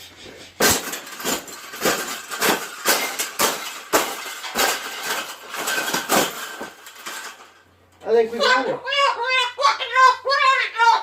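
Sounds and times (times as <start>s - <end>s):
metal wire cage clanking: 0.6s - 7.7s.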